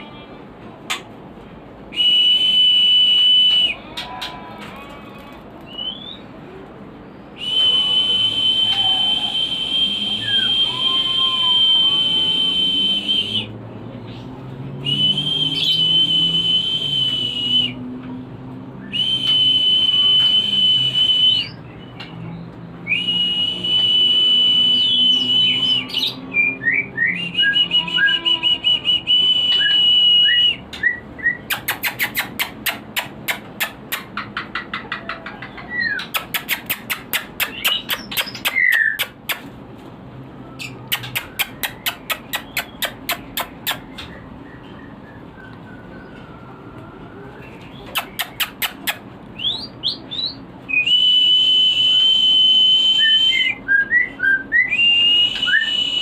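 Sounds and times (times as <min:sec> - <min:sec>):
long high bird whistles: 0:07.1 - 0:13.5, 0:49.4 - 0:56.0
rapid sharp bird clicks: 0:31.5 - 0:35.4, 0:36.0 - 0:39.5, 0:40.9 - 0:44.1, 0:47.9 - 0:49.0.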